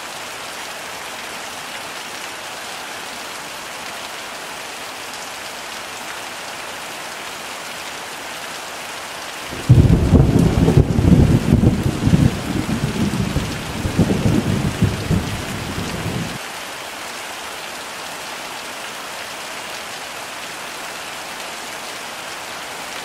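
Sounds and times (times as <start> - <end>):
heavy rain: 0.0 - 23.0
thunder clap and rumble: 9.5 - 16.4.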